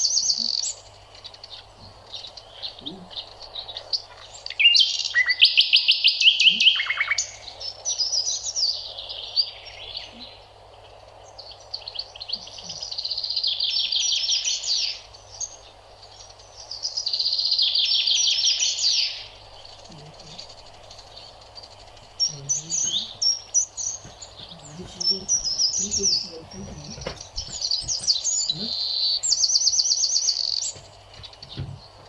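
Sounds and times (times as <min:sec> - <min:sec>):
bird trilling: 0:00.0 - 0:10.5, 0:16.7 - 0:32.0.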